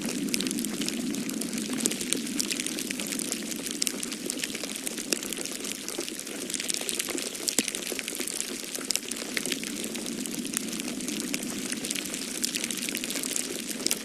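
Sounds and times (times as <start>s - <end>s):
wood fire crackling: 0.0s - 14.0s
wind rushing: 9.6s - 14.0s.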